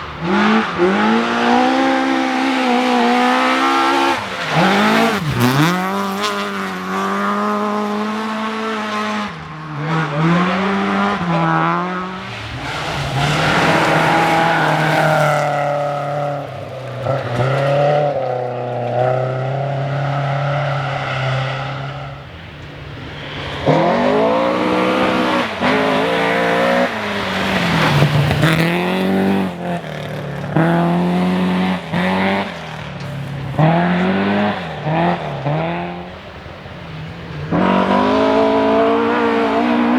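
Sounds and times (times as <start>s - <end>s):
rally car engine revving: 0.0s - 39.9s.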